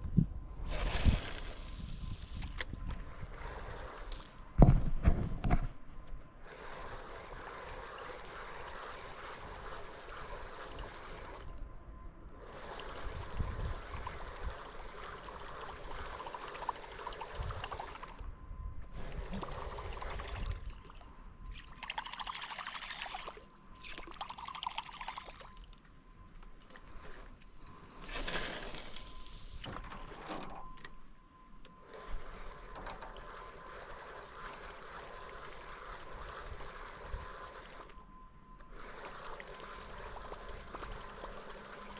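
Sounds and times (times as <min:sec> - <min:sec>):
water trickling off paddle: 0:19.0 - 0:25.9, 0:31.8 - 0:38.0, 0:38.6 - 0:41.9.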